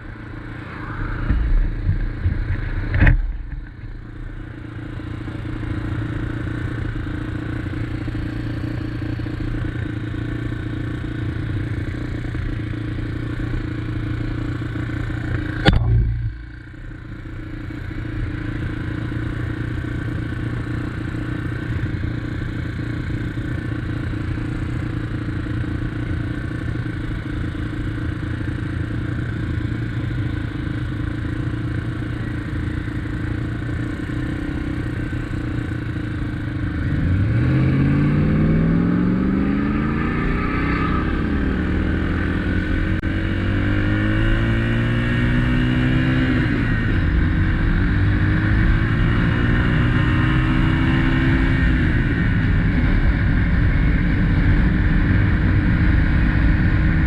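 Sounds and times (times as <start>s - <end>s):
motorcycle engine running: 0.0s - 57.0s
sharp knock: 15.6s - 16.4s.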